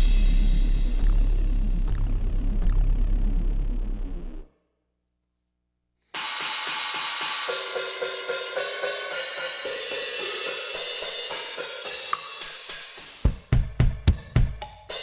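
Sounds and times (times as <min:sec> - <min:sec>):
cymbal and hi-hat strokes: 0:00.0 - 0:01.9, 0:06.2 - 0:13.6, 0:14.5 - 0:15.0.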